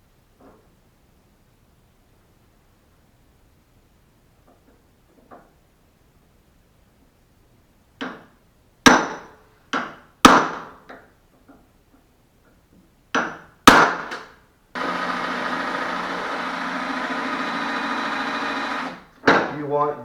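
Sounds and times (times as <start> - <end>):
whirring motor: 14.8 - 19.1.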